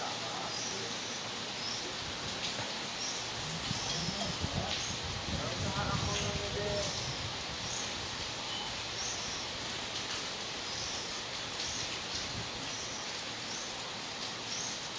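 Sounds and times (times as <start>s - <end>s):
heavy rain falling: 0.0s - 14.9s.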